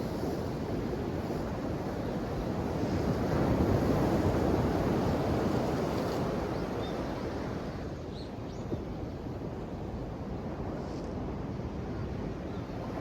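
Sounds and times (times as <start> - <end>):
ocean waves washing onto shore: 0.0 - 8.0.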